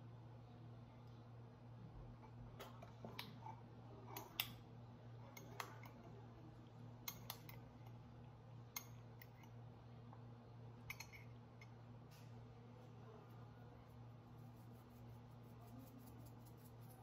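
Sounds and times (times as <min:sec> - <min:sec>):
low steady hum: 0:00.0 - 0:17.0
spoon clinking against mug: 0:10.9 - 0:11.7.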